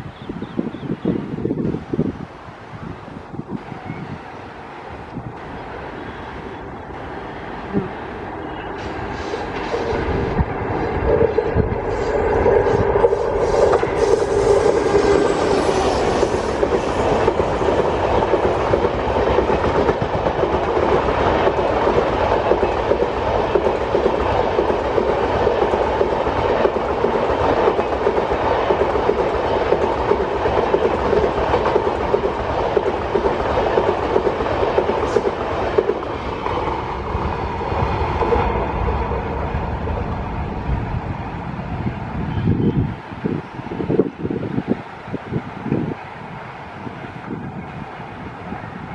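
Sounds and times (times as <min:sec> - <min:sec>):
train wheels clattering over rail joints: 0:12.6 - 0:39.3.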